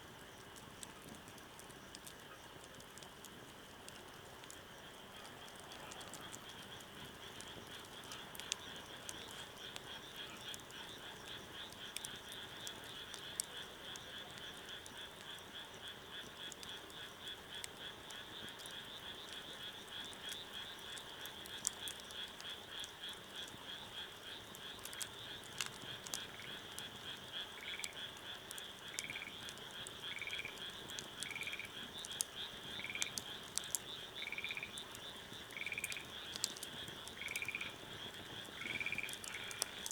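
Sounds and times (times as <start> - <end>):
campfire crackling: 0.0 - 39.9
frog chorus trilling: 24.2 - 39.9.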